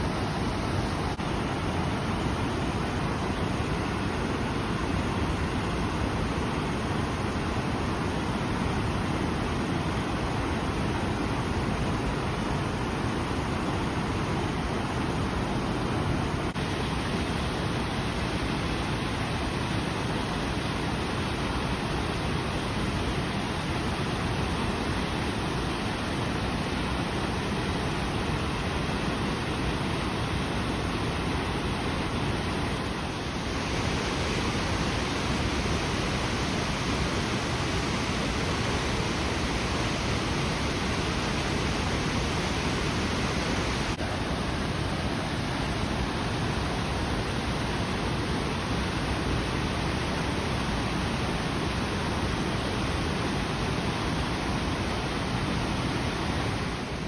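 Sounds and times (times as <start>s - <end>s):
waterfall rushing: 25.9s - 51.1s.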